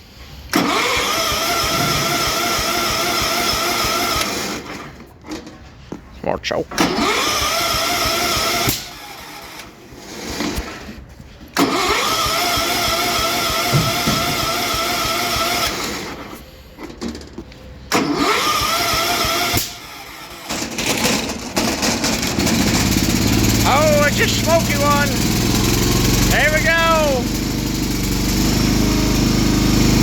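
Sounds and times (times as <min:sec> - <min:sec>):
electric starter cranking engine: 0:00.2 - 0:05.0, 0:06.8 - 0:30.0
engine firing: 0:00.3 - 0:05.0, 0:06.7 - 0:30.0.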